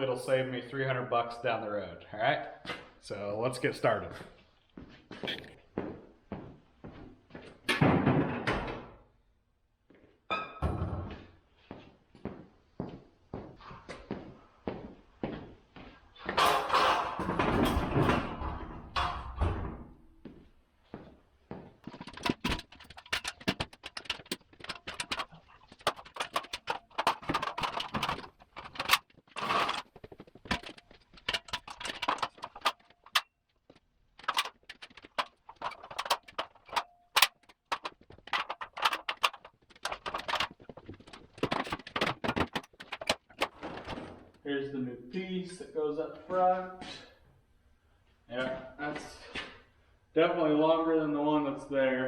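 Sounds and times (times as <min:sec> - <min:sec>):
metal parts clunking: 0:16.4 - 0:19.4, 0:21.8 - 0:44.4
packaging rustling: 0:21.9 - 0:33.2, 0:34.2 - 0:44.4.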